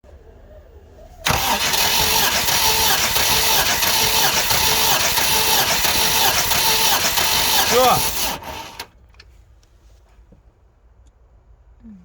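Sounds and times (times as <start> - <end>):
starter motor cranking engine: 1.2 - 8.9.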